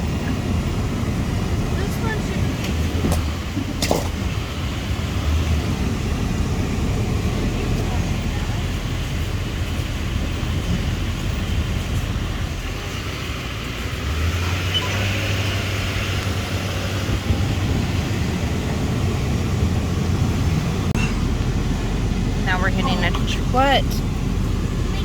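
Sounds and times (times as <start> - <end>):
road rumble: 0.0 - 25.0
truck engine running: 0.0 - 25.0
deep steady drone: 14.8 - 25.0.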